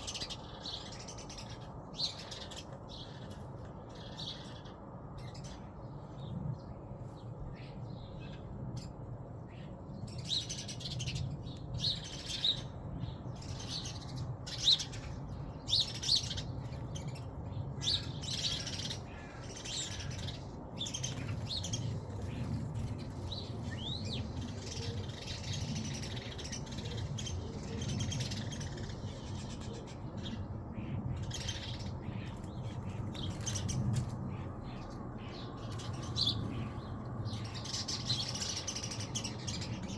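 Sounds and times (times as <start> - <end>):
wild birds chirping: 0.0 - 39.9
steady low rumble: 16.4 - 39.9.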